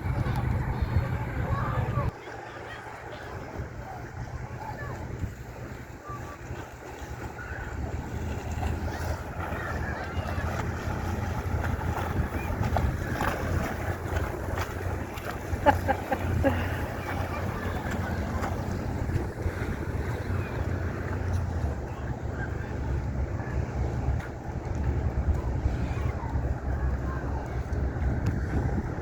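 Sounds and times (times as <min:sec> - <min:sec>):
motorboat engine rumbling: 0:00.0 - 0:29.0
water noise: 0:00.0 - 0:29.0
wind: 0:00.0 - 0:29.0.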